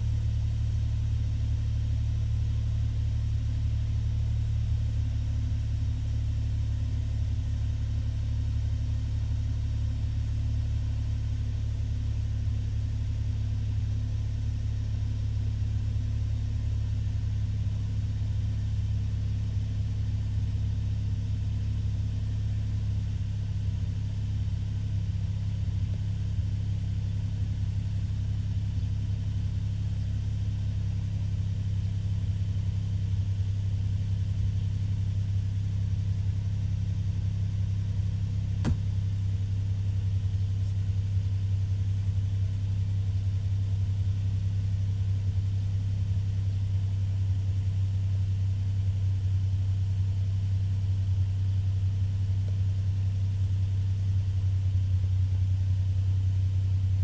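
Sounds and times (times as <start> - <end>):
car engine idling: 13.0 - 57.0.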